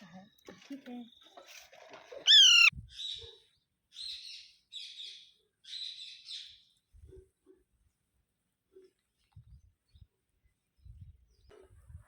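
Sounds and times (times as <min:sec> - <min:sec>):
parakeet shrill call: 0:02.3 - 0:02.7.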